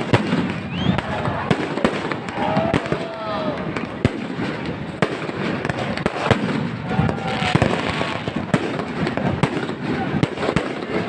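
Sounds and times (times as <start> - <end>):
fireworks bangs: 0.0 - 11.0
fireworks crackle: 0.0 - 11.0
faint whistling glides: 0.7 - 1.2.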